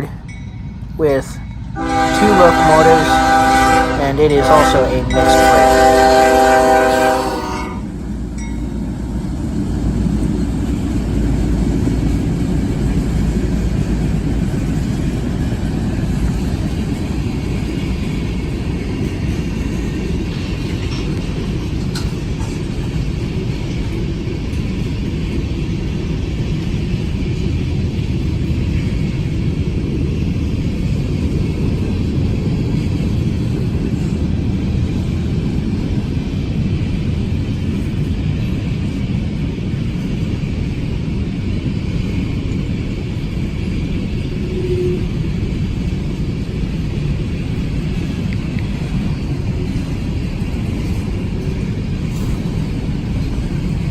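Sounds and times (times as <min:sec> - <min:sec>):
freight train rumbling past: 0:00.0 - 0:53.9.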